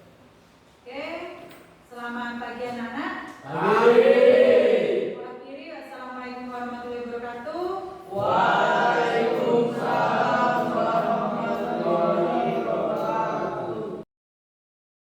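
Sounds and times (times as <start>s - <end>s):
group chanting a prayer: 3.4s - 5.2s, 8.1s - 14.1s.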